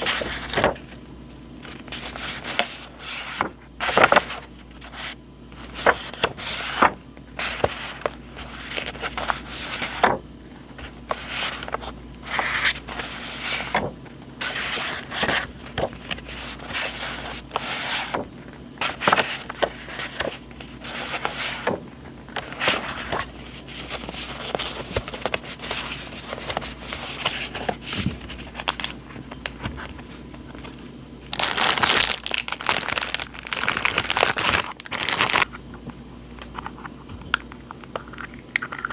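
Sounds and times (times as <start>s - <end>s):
paper rustling and crinkling: 0.0s - 1.0s, 1.6s - 35.6s.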